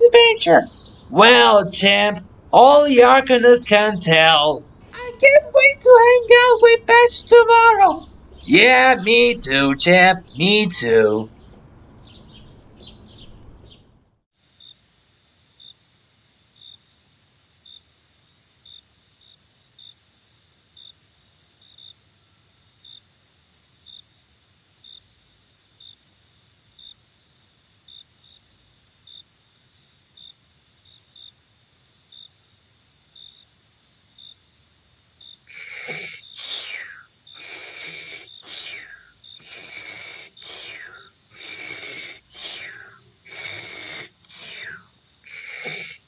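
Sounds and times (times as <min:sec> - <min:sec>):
crickets trilling: 0:00.0 - 0:13.7, 0:14.4 - 0:46.0.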